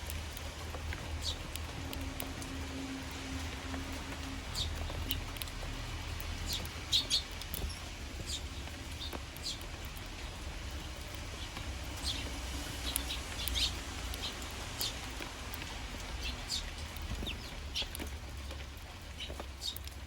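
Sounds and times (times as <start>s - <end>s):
sparrows chirping: 0.4s - 20.0s.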